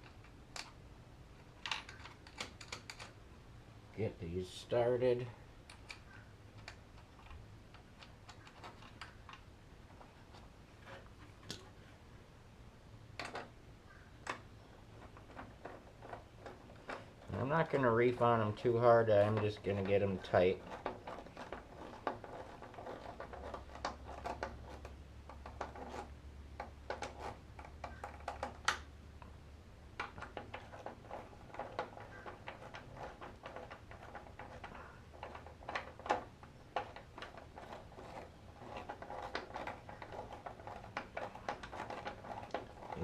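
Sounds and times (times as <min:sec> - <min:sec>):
metal and plastic clicks: 0:00.0 - 0:00.8, 0:01.4 - 0:03.2, 0:05.6 - 0:10.4.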